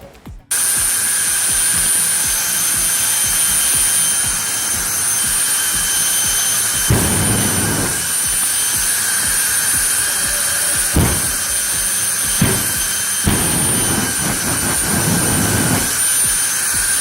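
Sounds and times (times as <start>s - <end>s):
jet engine roaring: 0.5s - 17.0s
low engine burst: 6.7s - 16.0s.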